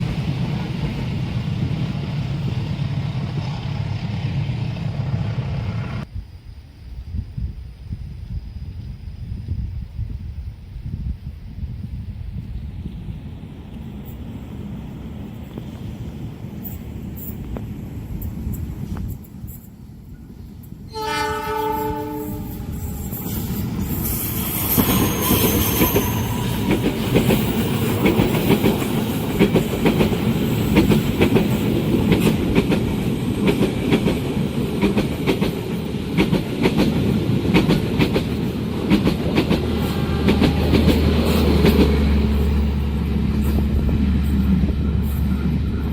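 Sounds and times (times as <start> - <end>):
train rumbling past: 0.0 - 6.3, 7.1 - 45.9
wheel squeal: 22.7 - 27.9.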